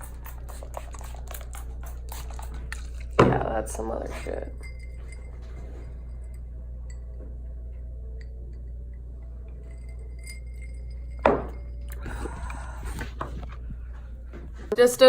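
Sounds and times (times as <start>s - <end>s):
low hum: 0.0s - 15.0s
glassy clinks: 4.3s - 7.2s, 8.2s - 12.1s.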